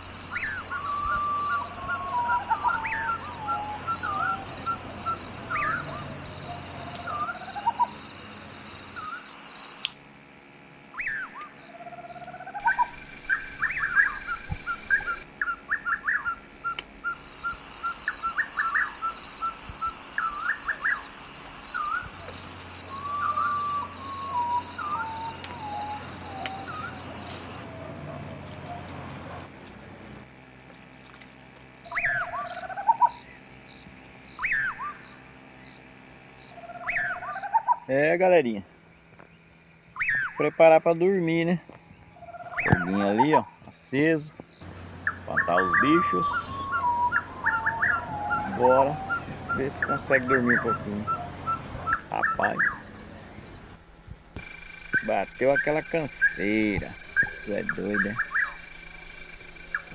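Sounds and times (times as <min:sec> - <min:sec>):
insects buzzing: 0:00.0 - 0:59.9
birds calling and whistling: 0:00.3 - 0:08.0, 0:11.0 - 0:17.2, 0:17.9 - 0:19.6, 0:21.8 - 0:29.5, 0:31.9 - 0:33.5, 0:34.3 - 0:35.2, 0:36.5 - 0:37.9, 0:40.0 - 0:40.8, 0:41.9 - 0:53.6, 0:54.4 - 0:59.9.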